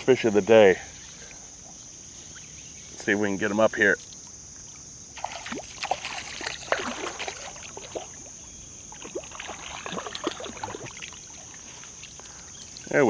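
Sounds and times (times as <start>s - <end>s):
fish splashing at water surface: 5.2s - 8.2s.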